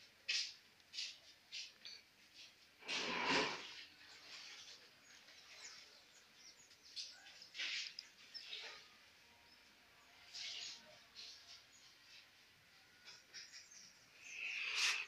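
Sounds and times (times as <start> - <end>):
high bird chirps: 13.3 - 15.0.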